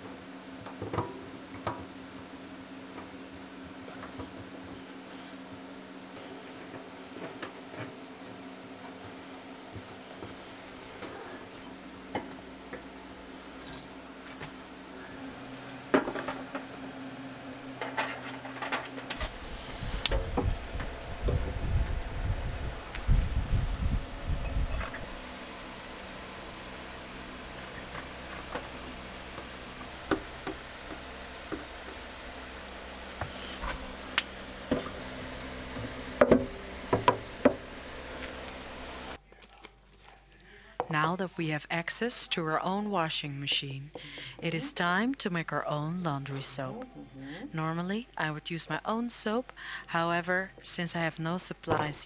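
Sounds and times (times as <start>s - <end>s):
steady low hum: 0.0s - 52.0s
low rumble: 19.2s - 26.5s.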